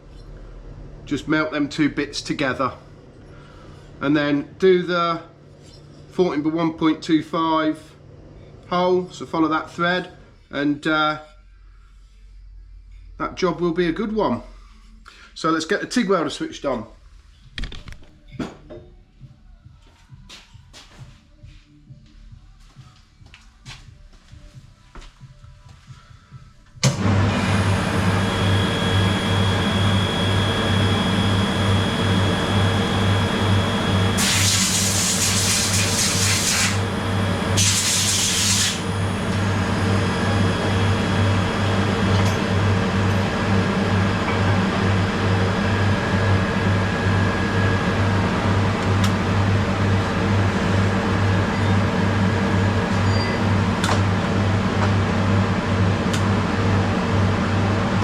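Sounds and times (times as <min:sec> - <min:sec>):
welder electrical buzz: 0:26.9 - 0:55.4.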